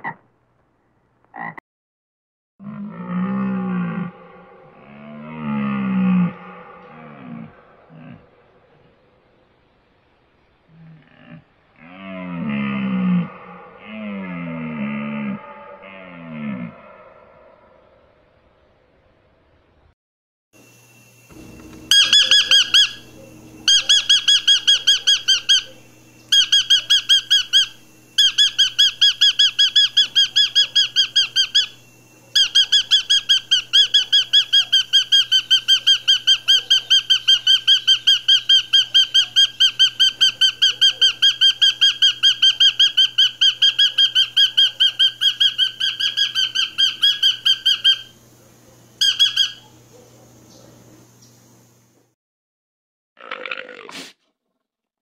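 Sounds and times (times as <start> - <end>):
bird calling rapid high notes: 21.9 - 25.7.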